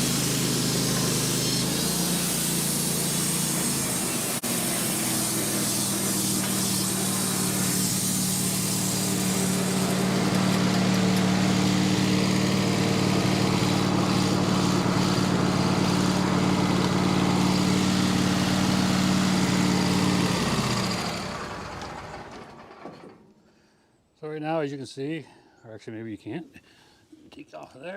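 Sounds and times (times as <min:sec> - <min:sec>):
blade cutting through log: 0:00.0 - 0:18.4
bandsaw mill running: 0:00.0 - 0:22.8.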